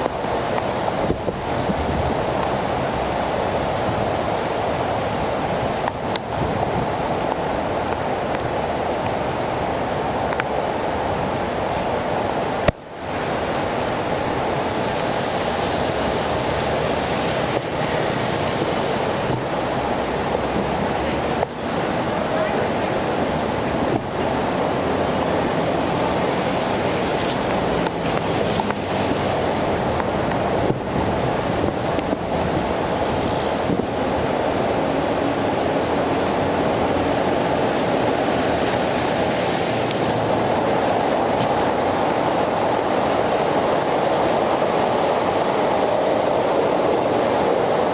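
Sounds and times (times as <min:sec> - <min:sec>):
tyres on wet pavement: 0:00.0 - 0:47.9
wind on microphone: 0:00.0 - 0:47.9.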